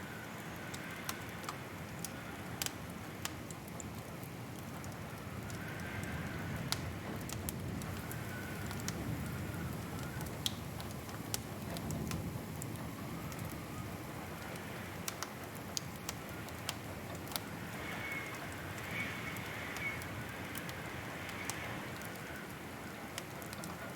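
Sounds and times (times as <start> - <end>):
wood fire crackling: 0.1 - 23.9.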